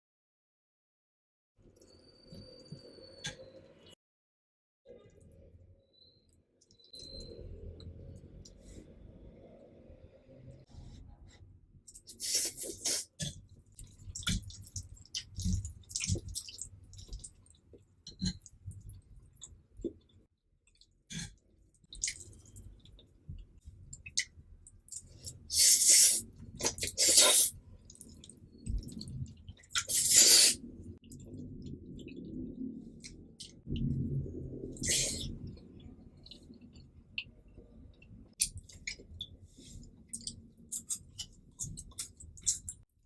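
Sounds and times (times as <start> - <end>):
person chewing: 12.0 - 20.1
slurping noodles: 25.5 - 27.5, 29.8 - 30.6.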